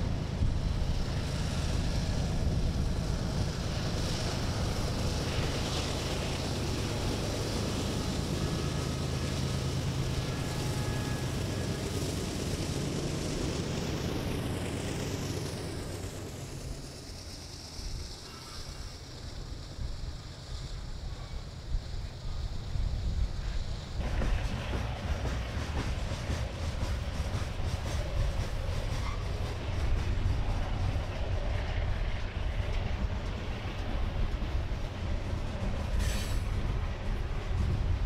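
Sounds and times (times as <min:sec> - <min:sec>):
diesel locomotives rumbling: 0:00.0 - 0:38.0
wind buffeting microphone: 0:20.7 - 0:38.0.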